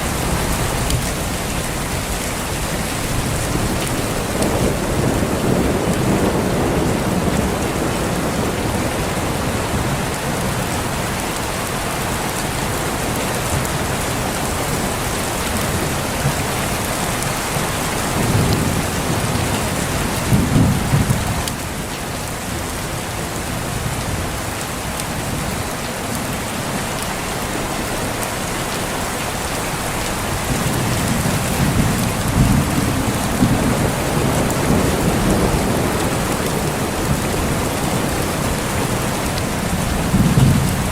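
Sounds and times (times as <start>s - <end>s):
low thunder rumbling: 0.0s - 11.3s, 15.6s - 21.5s, 30.2s - 40.9s
steady rain: 0.0s - 40.9s.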